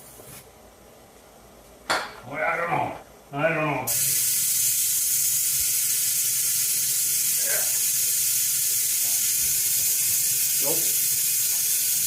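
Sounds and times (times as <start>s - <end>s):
pressurised gas hissing: 3.9s - 12.0s.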